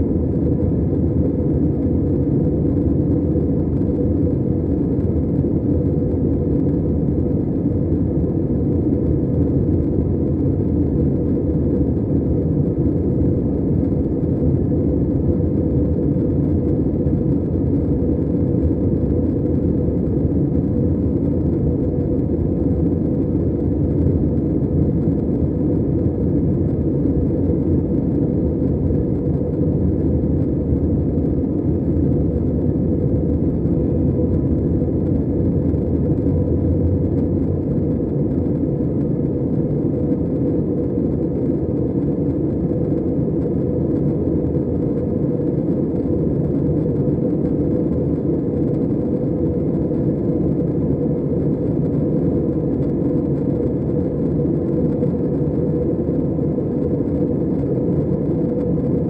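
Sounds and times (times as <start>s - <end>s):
airliner cabin noise in flight: 0.0s - 59.0s.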